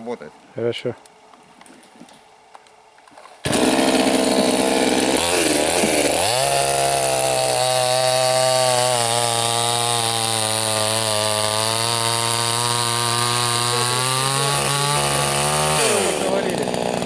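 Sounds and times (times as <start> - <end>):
chainsaw cutting: 3.4 - 17.0.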